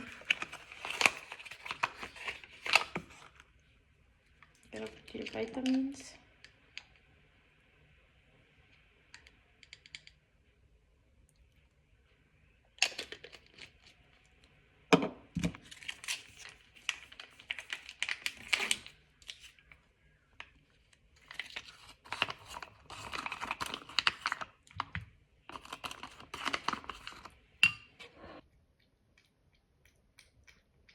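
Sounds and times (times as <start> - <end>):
packaging crinkling and tearing: 0.0 - 3.4, 15.6 - 19.7, 21.2 - 24.7, 25.5 - 27.4.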